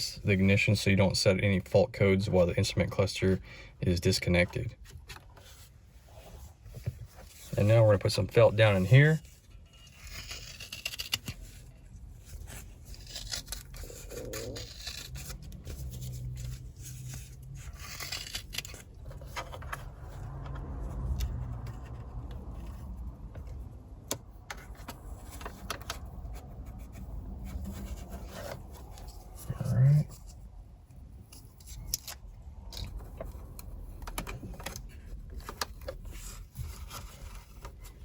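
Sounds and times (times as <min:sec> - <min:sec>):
tape scratching and rubbing: 0:07.2 - 0:23.6, 0:24.2 - 0:30.5.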